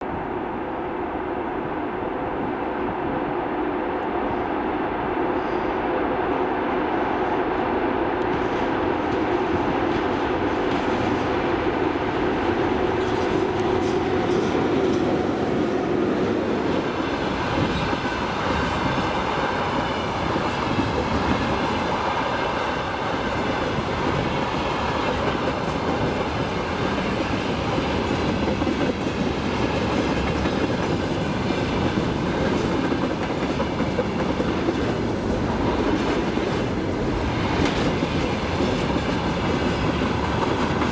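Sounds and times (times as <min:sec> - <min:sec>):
electric locomotive hum: 0:00.0 - 0:40.9
train wheels clickety-clack on rails: 0:04.0 - 0:40.9.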